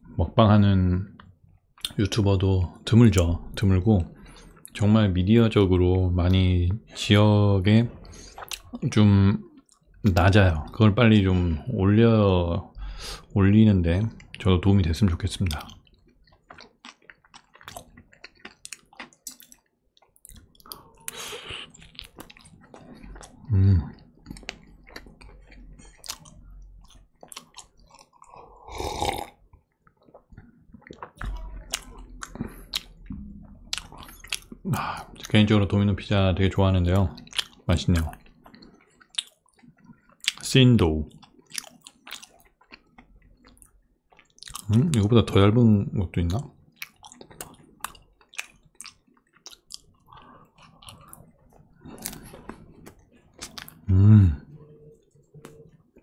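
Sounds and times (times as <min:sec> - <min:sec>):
person chewing: 0:08.0 - 0:10.8, 0:15.4 - 0:35.4, 0:36.9 - 0:40.5, 0:41.1 - 0:45.0, 0:46.3 - 0:56.0.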